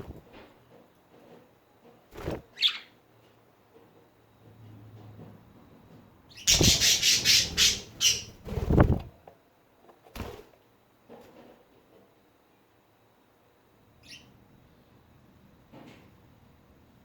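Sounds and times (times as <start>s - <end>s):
budgies chattering: 6.4s - 8.4s.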